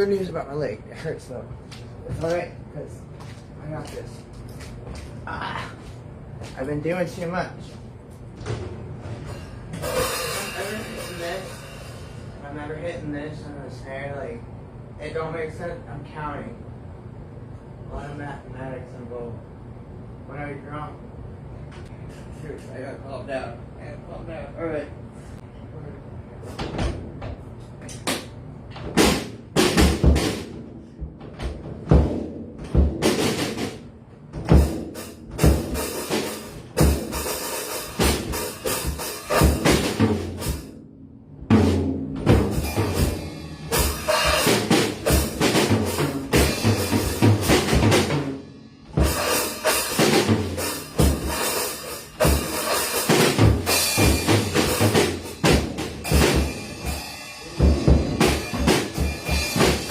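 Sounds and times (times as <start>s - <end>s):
drum kit playing: 8.3s - 12.5s, 28.0s - 59.9s
cymbals washing: 9.2s - 12.5s, 35.0s - 40.7s, 41.6s - 59.9s.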